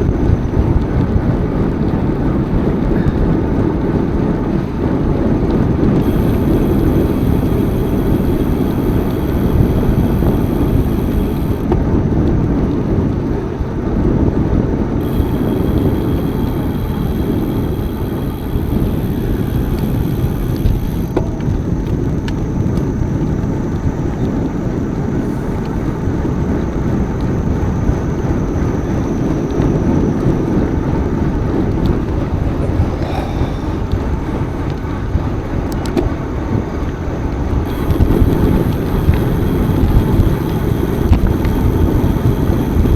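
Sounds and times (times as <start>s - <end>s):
wind rumble on microphone: 0.0s - 42.9s
faint high hiss: 6.0s - 11.6s, 15.0s - 21.2s, 37.7s - 42.9s.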